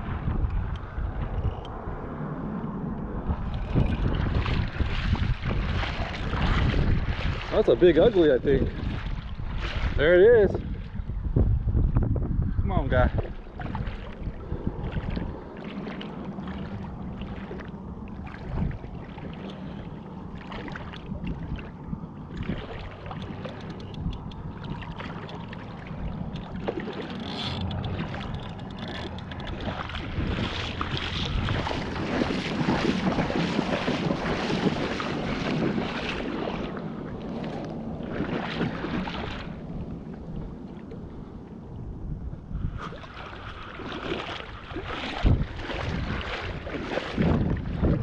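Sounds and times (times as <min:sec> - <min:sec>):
wind buffeting microphone: 0:00.0 - 0:48.0
steady low drone: 0:13.3 - 0:42.7.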